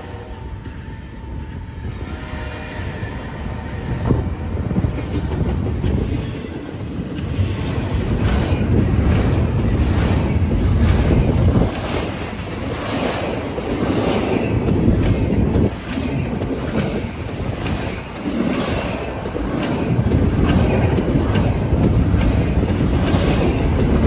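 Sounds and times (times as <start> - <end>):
freight train rumbling past: 0.0 - 24.0
wheels clacking over rail joints: 4.8 - 24.0.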